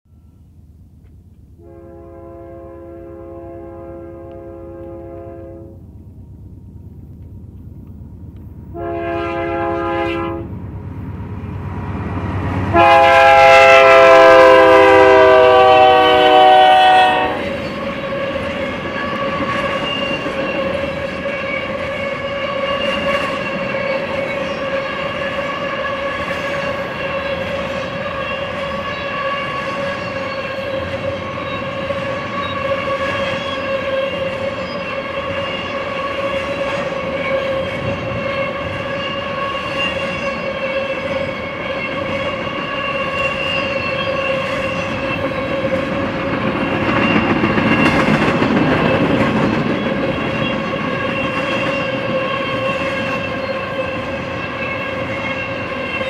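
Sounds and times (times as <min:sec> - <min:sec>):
train wheel whine: 0:00.1 - 0:56.0
locomotive air horn blasts: 0:01.6 - 0:05.8, 0:08.7 - 0:10.5, 0:12.7 - 0:18.3, 0:24.6 - 0:44.8.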